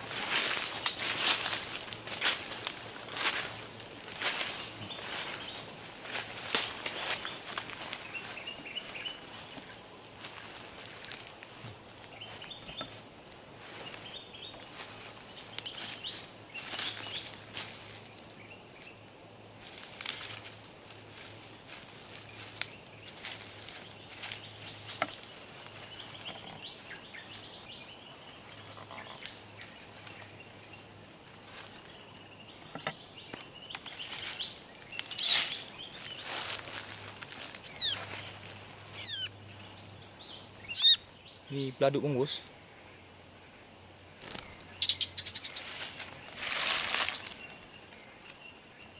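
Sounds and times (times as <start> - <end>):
rustling and crackling: 0.0 - 13.0, 32.6 - 38.9, 45.6 - 48.4
high insect drone: 0.0 - 48.9
sharp bird chirps: 32.5 - 36.3, 37.3 - 41.7, 44.3 - 45.8.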